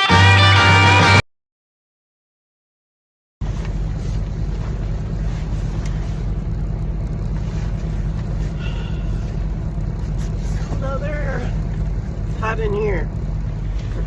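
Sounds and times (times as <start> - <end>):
semi truck engine droning: 3.4 - 14.0.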